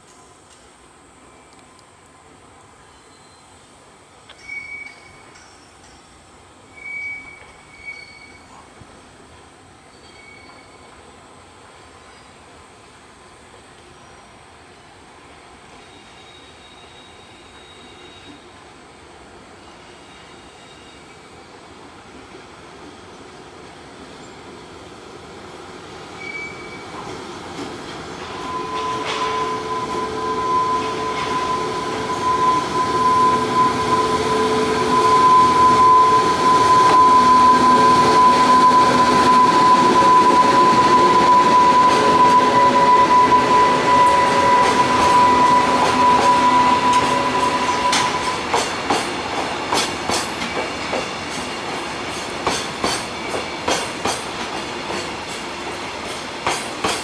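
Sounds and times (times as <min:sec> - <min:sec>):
electric locomotive passing: 0:02.1 - 0:57.0
steady high tone: 0:28.2 - 0:48.6.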